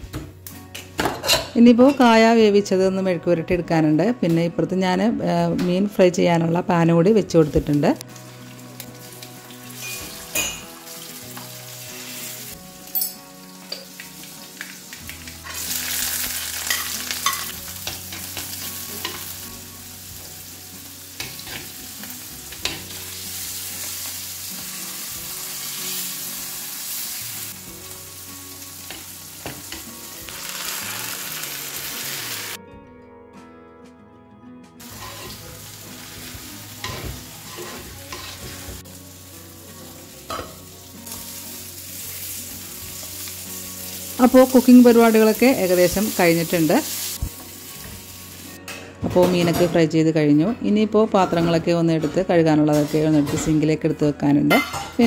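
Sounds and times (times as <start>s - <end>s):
fish sizzling in hot oil: 8.1s - 32.6s, 34.8s - 48.6s.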